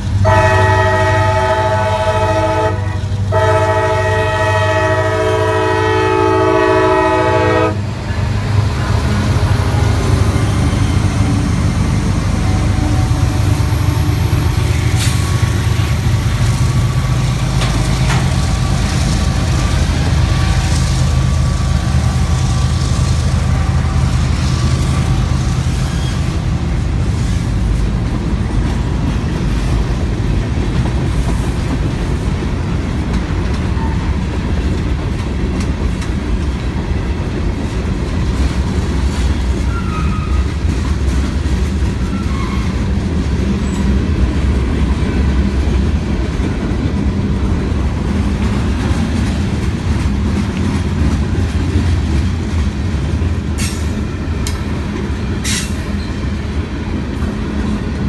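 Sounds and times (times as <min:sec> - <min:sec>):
freight cars rumbling past: 0:00.0 - 0:58.0
locomotive horn: 0:00.1 - 0:27.4, 0:39.3 - 0:40.8.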